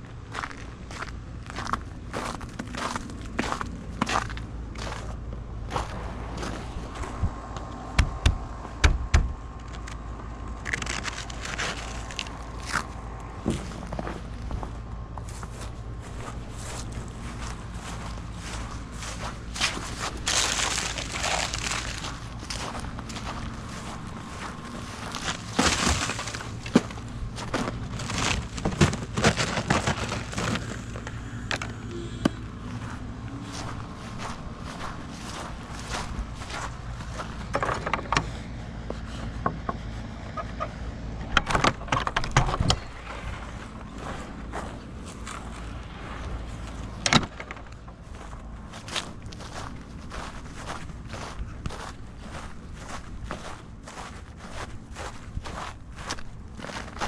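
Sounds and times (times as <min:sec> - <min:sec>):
footsteps crunching on snow: 0:00.2 - 0:07.9, 0:10.6 - 0:31.4, 0:32.0 - 0:37.5, 0:43.0 - 0:47.0, 0:47.9 - 0:57.0
ice cracking: 0:10.7 - 0:12.8, 0:20.2 - 0:22.2, 0:25.1 - 0:27.0, 0:27.7 - 0:31.1.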